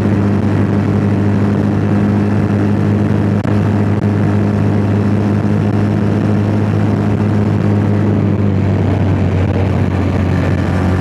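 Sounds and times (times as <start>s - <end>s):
motorcycle engine running: 0.0s - 11.0s
wind noise on microphone: 0.0s - 11.0s.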